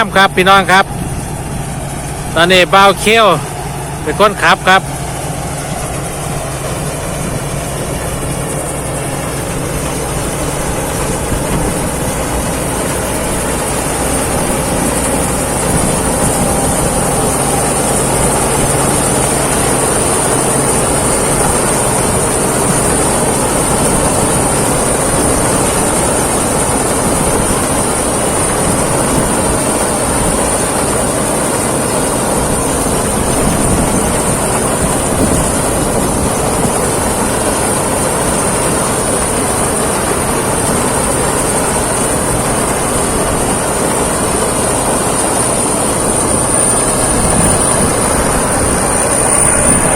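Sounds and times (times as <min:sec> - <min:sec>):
combine harvester running: 0:00.0 - 0:49.9
steady high whine: 0:00.0 - 0:49.9.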